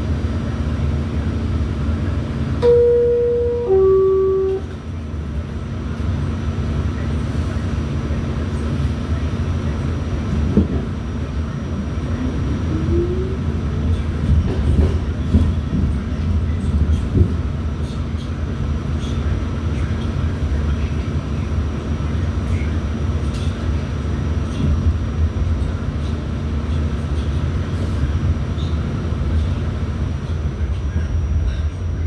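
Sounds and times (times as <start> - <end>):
subway car rumble: 0.0 - 32.0
two-note descending door chime: 2.6 - 4.7.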